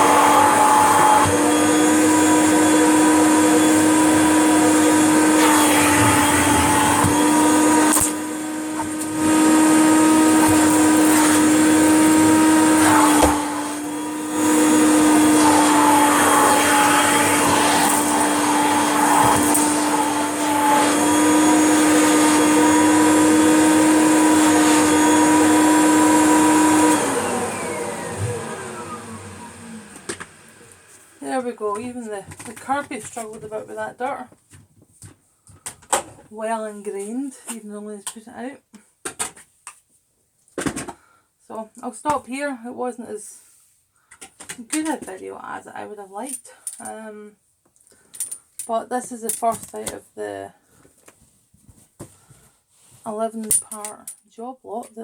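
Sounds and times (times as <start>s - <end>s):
vacuum motor winding down: 0.0s - 31.3s
vacuum cleaner running: 0.0s - 31.9s.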